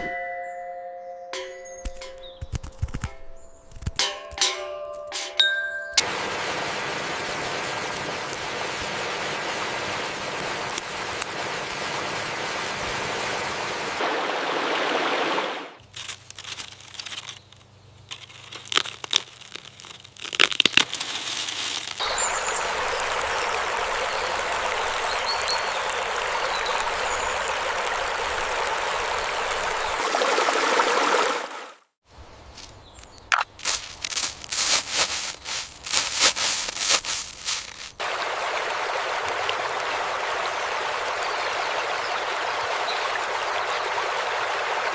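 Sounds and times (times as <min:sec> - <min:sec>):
clicks and crackles: 0:01.8 - 0:05.2, 0:10.1 - 0:11.8, 0:15.8 - 0:22.0, 0:33.0 - 0:38.0
flowing water rushing: 0:06.0 - 0:15.8, 0:22.0 - 0:31.9, 0:34.2 - 0:44.9.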